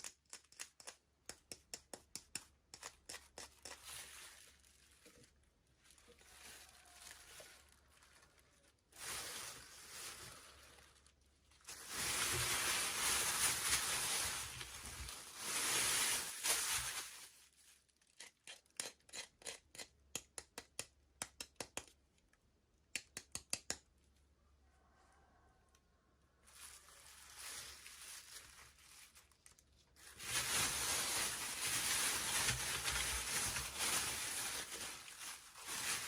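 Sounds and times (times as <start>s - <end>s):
packaging tearing and rustling: 2.8s - 19.1s, 26.6s - 36.0s.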